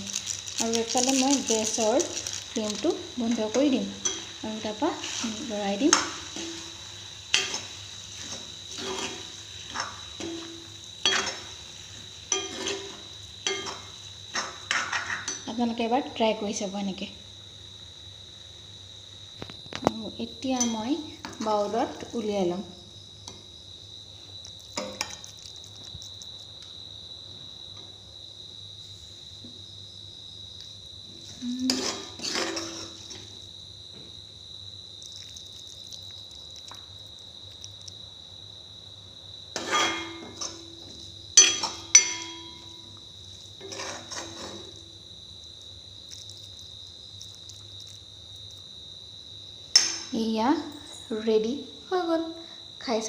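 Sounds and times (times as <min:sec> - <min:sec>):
cricket chirring: 0:00.0 - 0:53.0
spoon scraping metal pan: 0:01.4 - 0:11.7, 0:12.3 - 0:15.5, 0:31.7 - 0:33.4, 0:39.6 - 0:40.7, 0:43.6 - 0:44.8.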